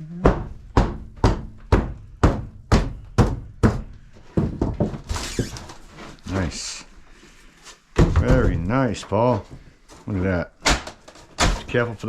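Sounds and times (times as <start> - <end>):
heavy blows on wooden flooring: 0.1 - 5.3, 7.9 - 9.7.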